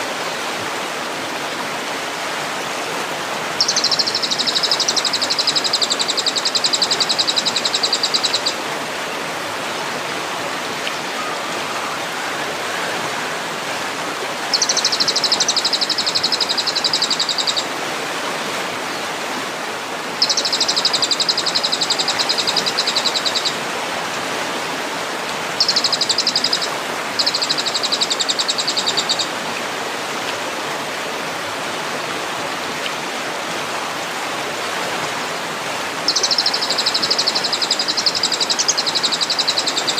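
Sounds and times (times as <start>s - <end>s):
flowing water: 0.0s - 39.9s
bird buzzy trills: 3.6s - 8.6s, 14.5s - 17.6s, 20.2s - 23.6s, 25.6s - 29.3s, 36.1s - 39.9s.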